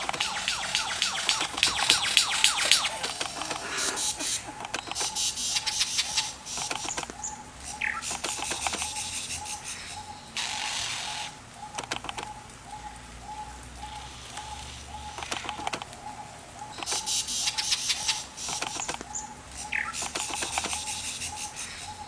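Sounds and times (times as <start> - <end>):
bird wings flapping: 1.3 - 4.6.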